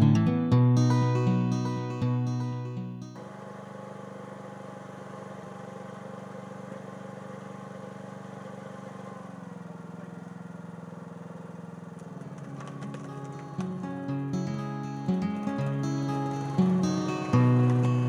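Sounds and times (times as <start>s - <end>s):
diesel tractor engine running: 3.2s - 18.0s.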